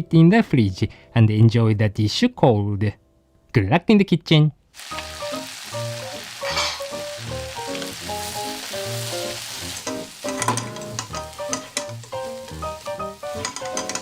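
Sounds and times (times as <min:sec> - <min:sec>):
light background music: 0:00.0 - 0:03.7, 0:04.8 - 0:14.0
food frying sizzle: 0:04.7 - 0:14.0.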